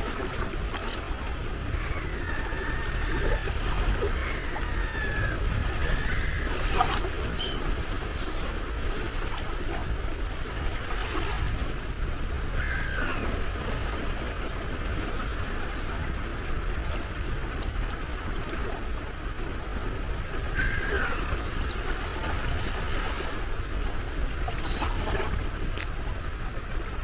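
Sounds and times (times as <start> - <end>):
sea waves washing ashore: 0.0 - 27.0
gull calling: 0.1 - 8.5, 12.6 - 13.4, 20.4 - 26.3.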